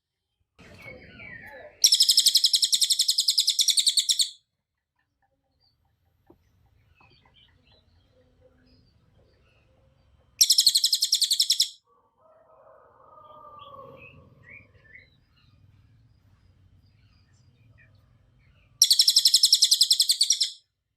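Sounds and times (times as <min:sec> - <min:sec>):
faint bird chirps: 0:00.6 - 0:04.5, 0:05.1 - 0:20.7
songbird high trill: 0:10.4 - 0:11.8, 0:18.8 - 0:20.6.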